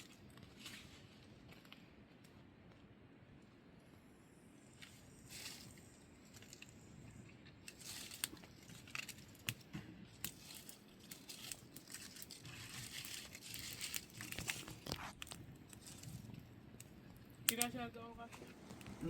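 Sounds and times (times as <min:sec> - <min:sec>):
dry material crinkling: 0:04.8 - 0:19.0.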